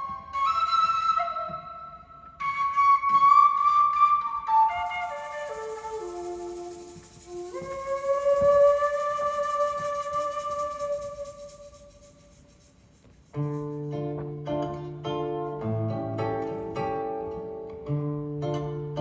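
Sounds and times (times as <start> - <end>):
solo flute playing: 0.0 - 12.3
plucked strings: 13.4 - 19.0.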